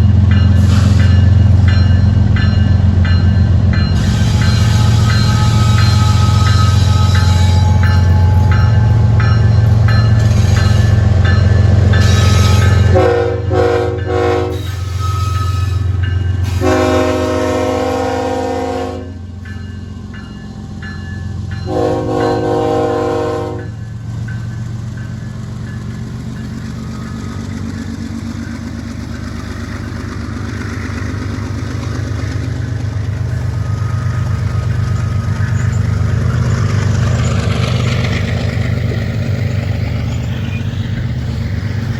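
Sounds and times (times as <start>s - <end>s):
diesel locomotive rumbling: 0.0s - 41.9s
train wheels rolling on rail: 0.0s - 41.9s
train horn blasts: 4.0s - 8.5s, 12.0s - 19.3s, 21.7s - 23.8s.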